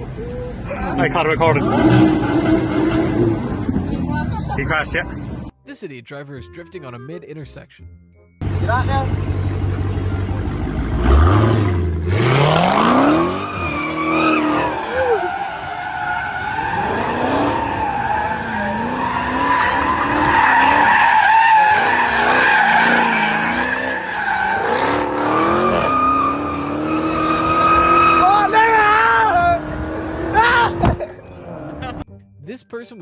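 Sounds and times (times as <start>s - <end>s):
car engine revving: 8.4s - 32.0s.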